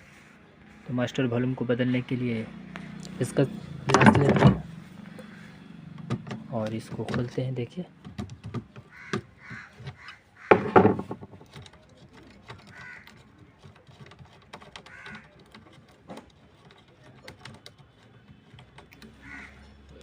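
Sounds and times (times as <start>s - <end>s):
tools clicking and knocking: 3.8s - 4.7s, 6.0s - 7.4s, 8.0s - 20.0s
loud clatter: 10.5s - 11.6s.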